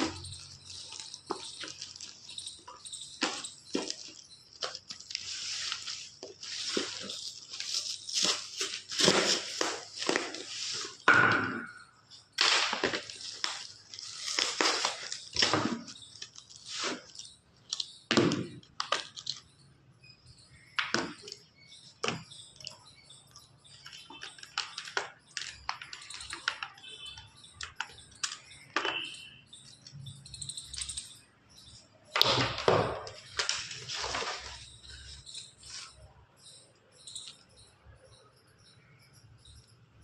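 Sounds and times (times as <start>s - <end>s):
packaging rustling and crinkling: 0.0s - 11.0s, 12.4s - 17.9s, 23.7s - 27.0s, 33.0s - 35.9s.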